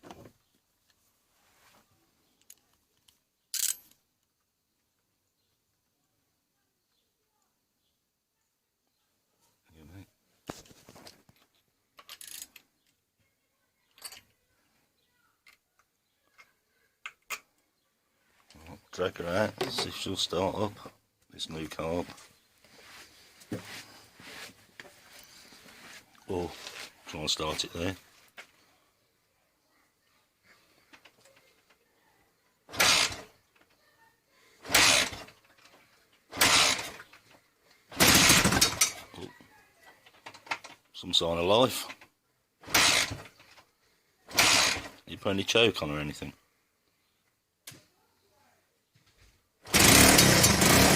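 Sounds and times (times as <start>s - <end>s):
tools clicking and knocking: 2.4s - 4.0s, 11.1s - 13.0s, 13.9s - 14.3s, 15.4s - 17.6s, 19.5s - 20.0s, 38.0s - 39.0s, 40.1s - 40.9s
motorcycle engine kick-start: 32.7s - 33.2s, 34.6s - 35.3s, 36.3s - 37.0s, 37.9s - 39.0s, 42.7s - 43.3s, 44.3s - 45.0s, 49.7s - 50.9s.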